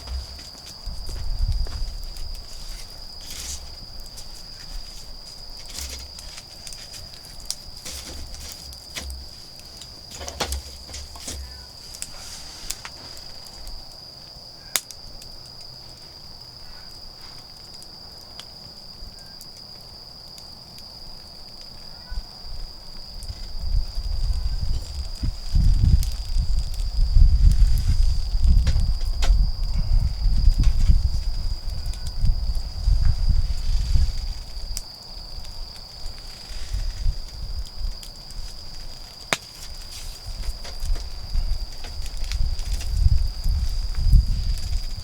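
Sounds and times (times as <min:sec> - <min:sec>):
wood fire crackling and popping: 0:00.0 - 0:21.8, 0:22.6 - 0:45.0
insects trilling: 0:00.0 - 0:45.0
low rustling rumble: 0:23.5 - 0:38.9.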